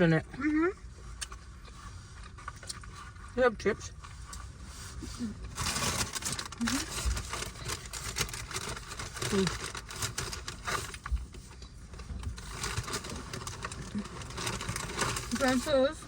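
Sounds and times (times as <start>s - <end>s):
paper packaging rustling: 5.2s - 16.0s.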